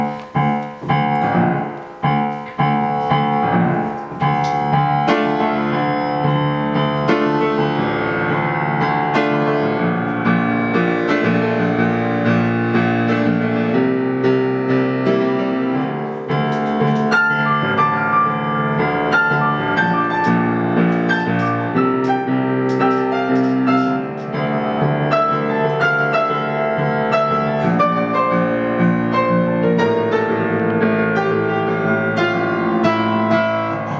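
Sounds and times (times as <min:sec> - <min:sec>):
piano music: 0:00.0 - 0:33.9.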